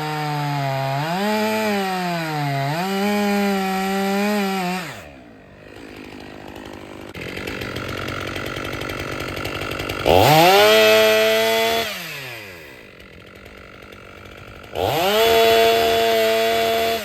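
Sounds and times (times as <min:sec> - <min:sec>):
chainsaw revving: 0:00.0 - 0:17.0.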